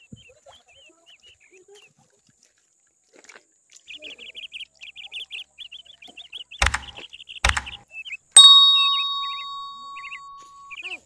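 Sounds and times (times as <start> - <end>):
small birds chirping: 3.8 - 11.0.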